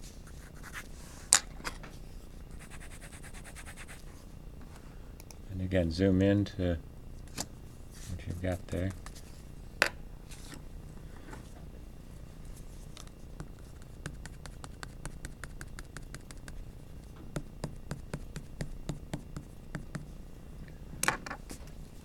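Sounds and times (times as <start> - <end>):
pencil scratching on paper: 0.4 - 0.8, 2.6 - 4.0, 13.4 - 16.7, 17.6 - 20.0.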